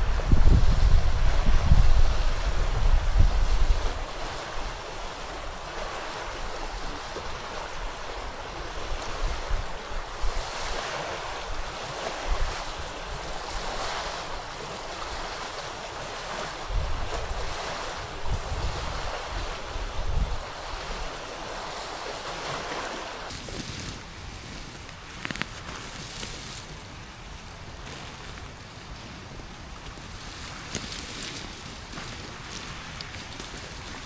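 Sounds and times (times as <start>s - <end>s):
wind gusting on microphone: 0.0s - 34.0s
river rushing: 17.5s - 34.0s.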